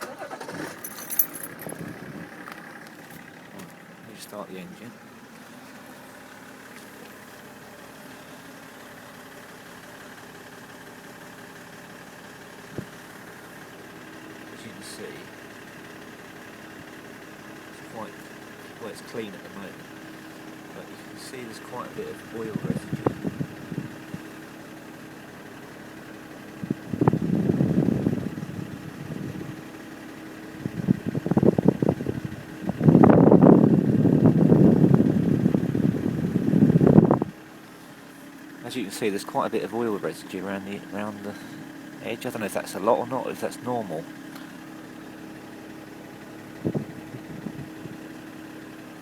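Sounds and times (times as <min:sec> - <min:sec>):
diesel car engine idling: 0:00.0 - 0:49.0.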